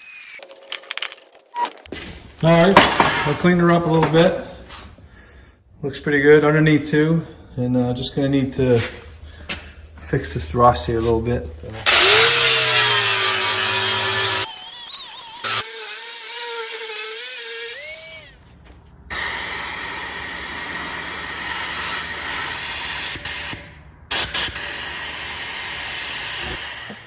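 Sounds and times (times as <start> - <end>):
power tool working metal: 11.8 - 18.4, 19.1 - 27.0.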